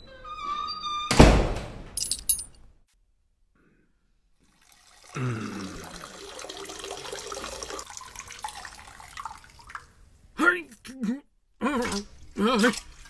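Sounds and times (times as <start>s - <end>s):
liquid splashing and trickling: 4.4s - 10.3s, 11.7s - 13.0s.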